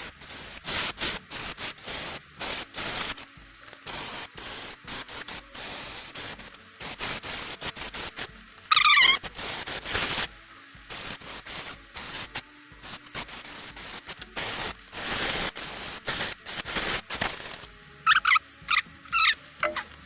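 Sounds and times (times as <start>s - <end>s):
scraping and clicking strokes: 0.0s - 10.3s, 10.9s - 20.0s
air hissing bursts: 0.0s - 19.5s
high squeaks: 8.7s - 9.2s, 18.1s - 20.0s.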